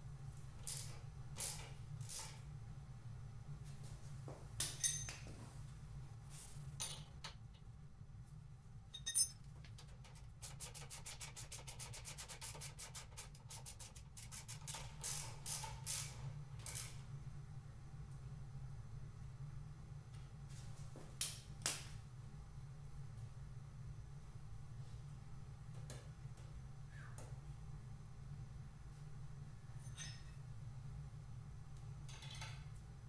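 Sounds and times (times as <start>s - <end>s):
steady low hum: 0.0s - 33.0s
rapid ratchet clicks: 9.8s - 16.2s.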